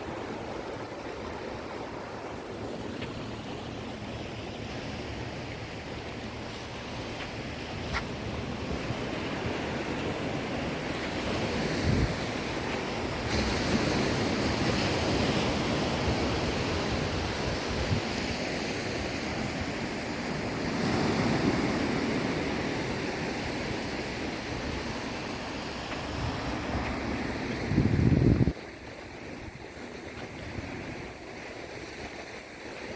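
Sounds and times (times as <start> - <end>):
sea waves breaking on shore: 0.0 - 32.9
wind buffeting microphone: 7.4 - 25.4, 26.0 - 32.5.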